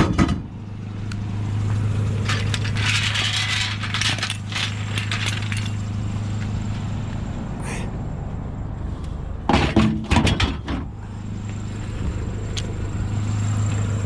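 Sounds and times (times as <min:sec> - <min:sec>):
engine idling: 0:00.0 - 0:14.0
scrap metal clattering: 0:02.2 - 0:05.9.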